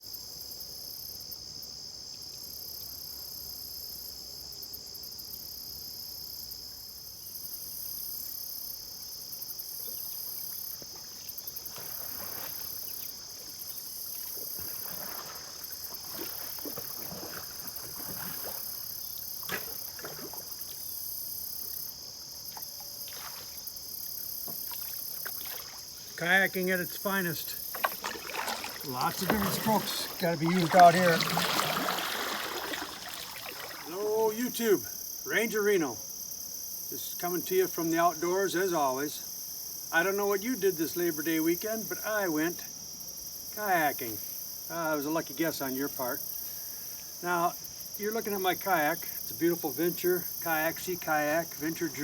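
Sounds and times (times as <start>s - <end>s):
insects chirring: 0.0s - 52.0s
kayak paddle splashing in water: 9.8s - 34.8s.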